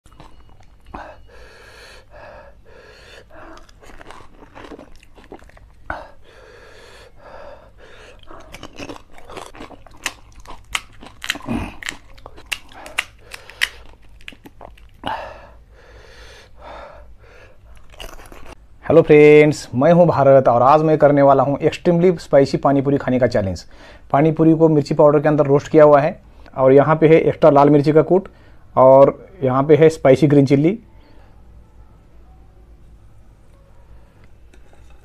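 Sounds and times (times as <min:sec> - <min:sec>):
crunchy wet chewing: 0:00.1 - 0:01.0, 0:03.1 - 0:06.2, 0:07.8 - 0:15.1, 0:17.6 - 0:18.6.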